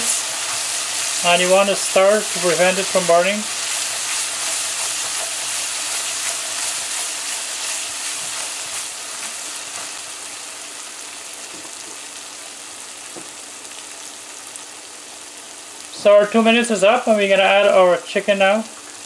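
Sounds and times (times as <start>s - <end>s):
spatula stirring: 0.0s - 10.2s
onions sizzling in oil: 0.0s - 19.0s.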